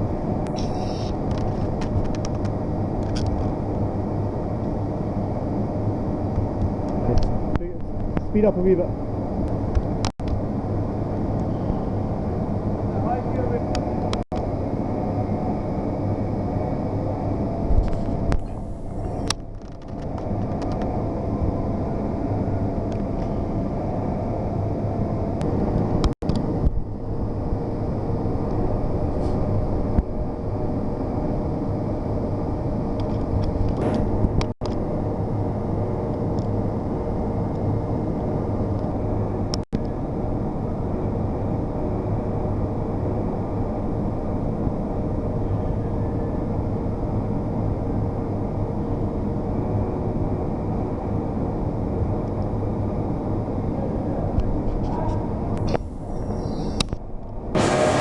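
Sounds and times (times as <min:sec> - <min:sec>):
machine high tones: 0:00.5 - 0:01.2, 0:57.6 - 0:58.0
boring machine humming: 0:55.3 - 0:58.0.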